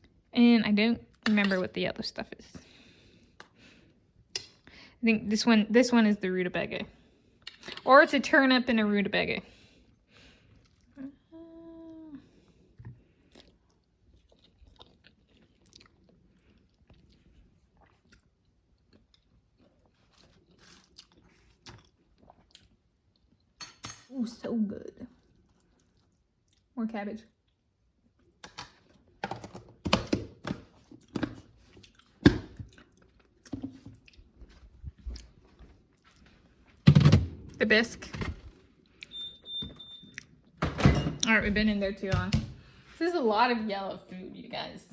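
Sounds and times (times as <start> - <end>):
person chewing: 10.6 - 11.0, 13.2 - 23.4, 31.7 - 34.3.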